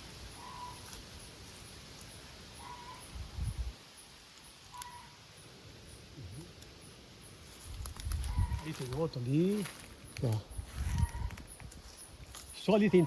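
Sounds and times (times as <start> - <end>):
faint high chirping: 0.3 - 7.4.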